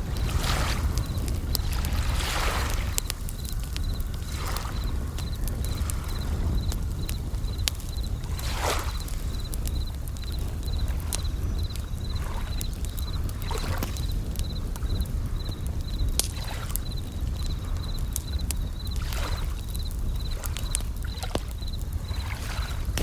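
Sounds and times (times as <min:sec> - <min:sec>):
waves washing: 0:00.0 - 0:06.8
campfire crackling and popping: 0:00.0 - 0:23.0
cricket chirping in high trills: 0:00.0 - 0:23.0.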